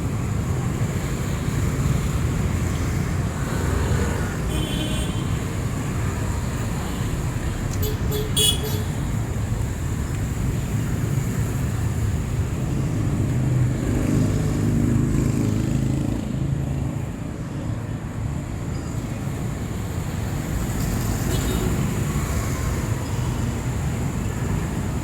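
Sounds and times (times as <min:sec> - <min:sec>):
vehicles passing: 0:00.0 - 0:25.0.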